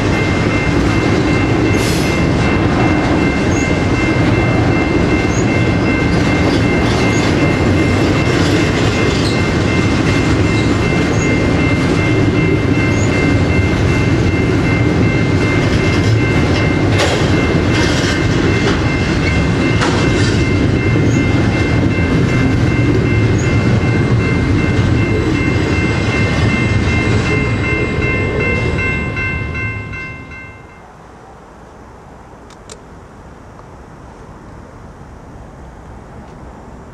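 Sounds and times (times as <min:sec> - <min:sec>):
high-pitched ringing: 0:00.0 - 0:30.9
train wheels rumbling on rails: 0:00.0 - 0:30.9
wheels clicking over rail joints: 0:15.0 - 0:27.4.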